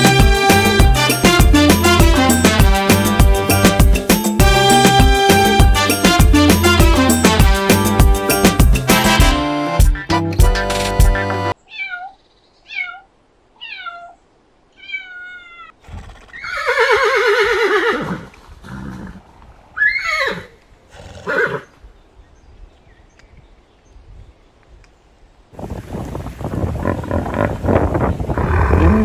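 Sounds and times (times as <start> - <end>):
cat meowing: 11.7 - 14.2, 14.8 - 15.8
horse whinnying: 14.8 - 21.7.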